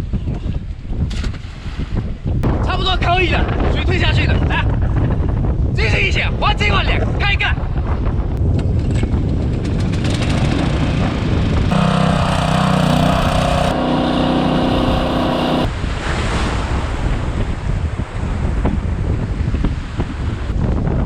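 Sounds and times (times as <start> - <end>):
wind buffeting microphone: 0.0 - 21.0
multi-toned hum: 11.7 - 15.7.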